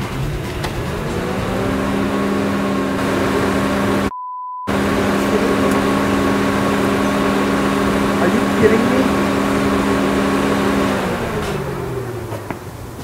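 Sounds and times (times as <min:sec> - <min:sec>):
car engine idling: 0:00.0 - 0:04.1, 0:04.7 - 0:13.0
censor bleep: 0:04.1 - 0:04.7.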